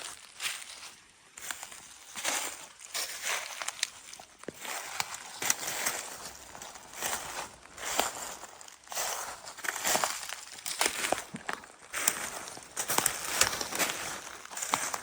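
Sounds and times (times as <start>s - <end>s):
footsteps crunching on forest floor: 0.0s - 15.0s
twigs cracking: 0.0s - 15.0s.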